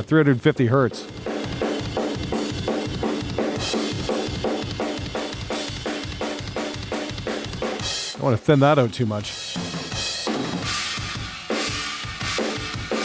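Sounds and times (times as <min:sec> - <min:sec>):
kick and snare drum groove: 0:00.9 - 0:13.0.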